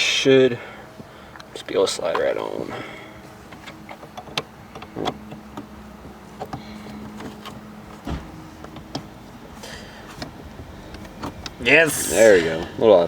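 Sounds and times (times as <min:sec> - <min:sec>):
heavy thump: 0:08.0 - 0:08.4.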